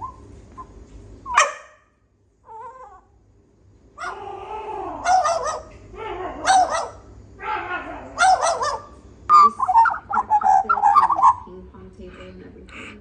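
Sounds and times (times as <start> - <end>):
dog yelping: 1.3 - 1.8, 2.4 - 3.1, 4.0 - 11.5
dog whimpering and yipping: 4.0 - 8.8.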